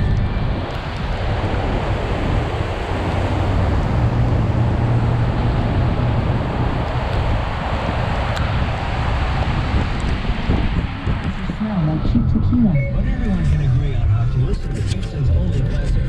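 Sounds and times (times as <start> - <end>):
low engine drone: 0.0 - 16.0
rush of water around car: 0.3 - 11.6.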